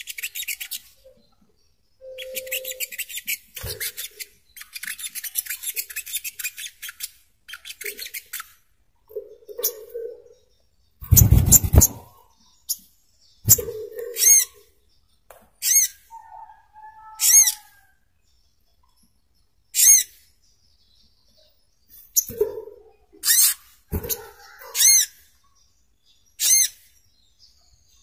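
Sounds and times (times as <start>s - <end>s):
sunbird high calls: 2.0s - 3.3s.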